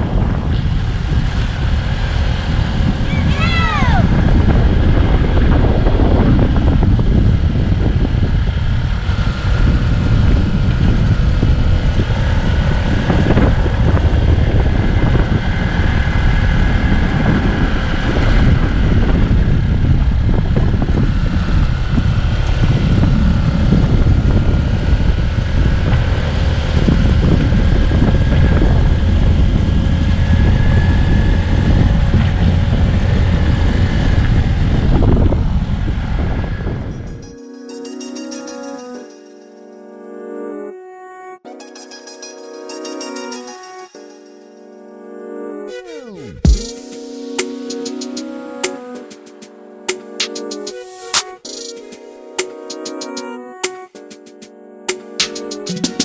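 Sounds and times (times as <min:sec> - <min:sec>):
wind rumble on microphone: 0:00.0 - 0:37.3
vehicle engine drone: 0:00.0 - 0:37.4.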